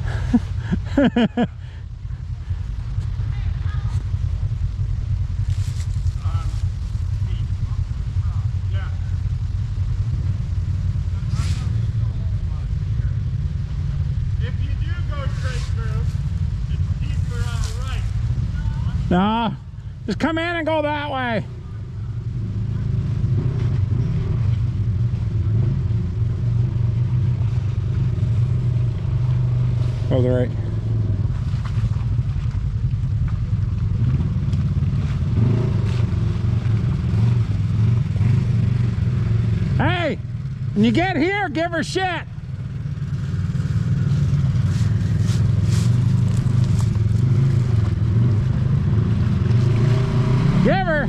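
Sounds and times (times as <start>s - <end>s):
vehicle engine running at low revs: 0.0s - 51.0s.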